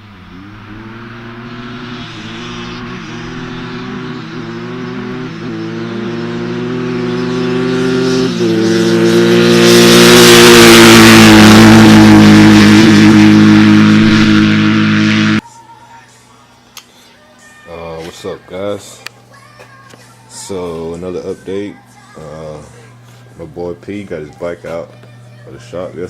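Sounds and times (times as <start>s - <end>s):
dirt bike engines revving hard: 0.0s - 15.4s.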